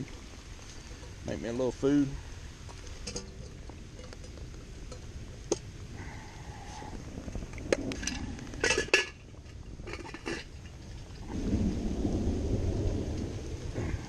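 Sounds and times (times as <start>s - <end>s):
steady rain: 0.0s - 14.0s
thunder rumble: 4.6s - 14.0s
metal cookware clinking: 8.0s - 9.2s.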